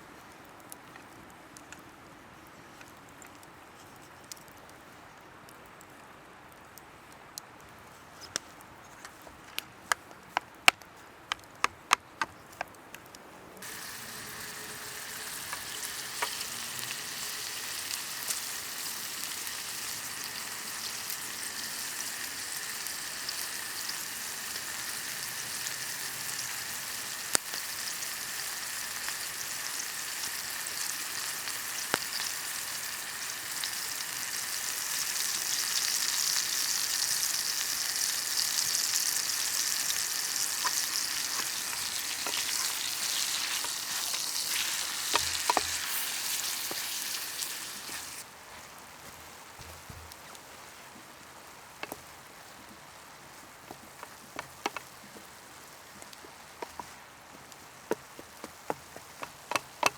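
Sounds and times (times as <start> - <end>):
food sizzling in a hot pan: 13.6 - 48.2
fat popping: 40.5 - 47.0.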